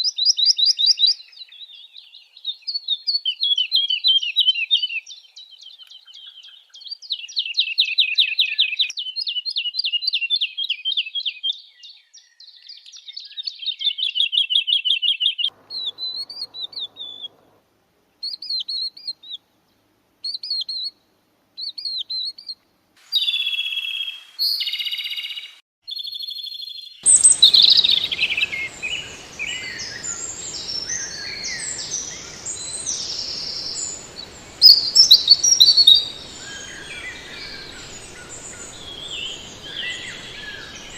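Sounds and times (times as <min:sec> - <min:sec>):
songbirds singing: 0:00.1 - 0:17.6, 0:21.6 - 0:40.9
background hiss: 0:15.5 - 0:21.6, 0:22.5 - 0:25.6, 0:27.0 - 0:40.9.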